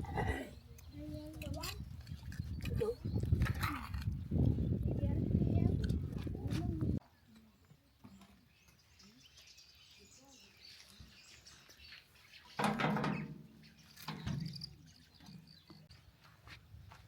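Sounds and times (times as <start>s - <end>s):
birds chirping faintly: 6.9s - 17.0s.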